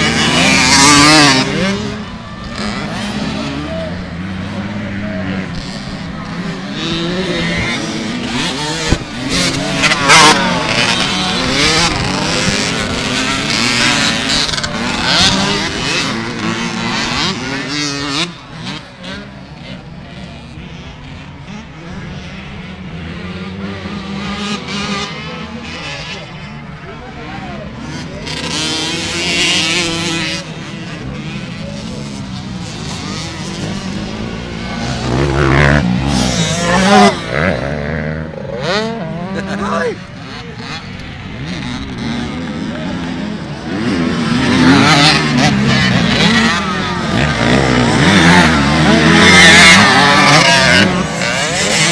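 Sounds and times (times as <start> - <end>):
motocross bike engines revving: 0.0 - 51.9.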